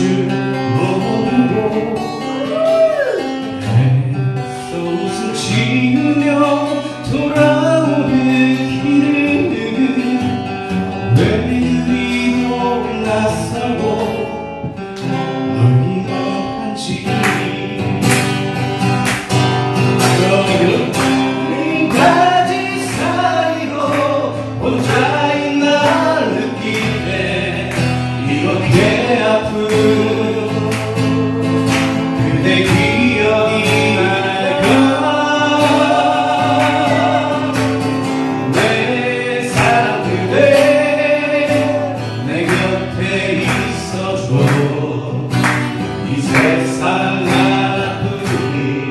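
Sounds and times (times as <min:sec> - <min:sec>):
strummed acoustic guitars: 0:00.0 - 0:48.9
group of people singing: 0:19.9 - 0:48.9.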